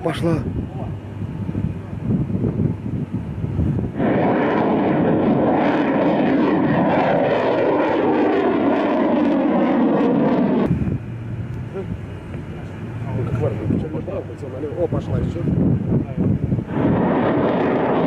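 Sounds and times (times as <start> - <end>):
rocket booster rushing roar: 3.6 - 10.7, 16.7 - 18.0.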